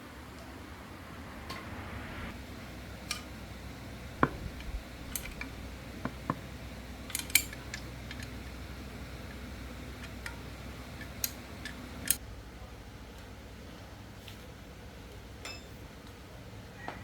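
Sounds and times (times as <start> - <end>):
low hum: 0.0 - 10.9.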